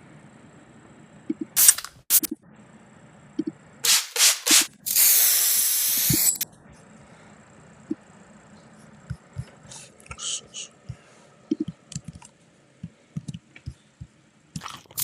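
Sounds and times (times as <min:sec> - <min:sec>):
spray hissing: 0:03.8 - 0:06.4.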